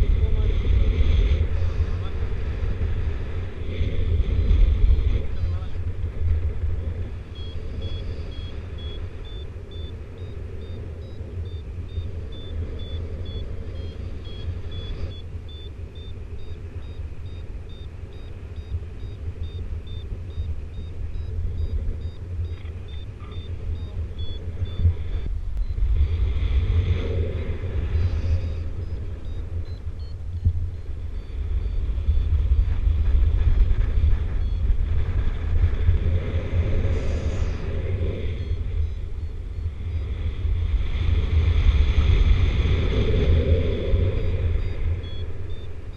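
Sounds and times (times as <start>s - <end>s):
wind rumble on microphone: 0.0s - 45.9s
variometer beeping: 7.0s - 25.9s, 28.3s - 32.7s, 33.6s - 35.2s, 38.4s - 40.1s, 43.9s - 45.9s.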